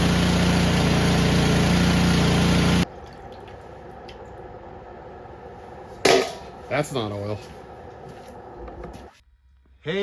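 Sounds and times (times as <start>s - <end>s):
snowblower engine running: 0.0s - 2.9s.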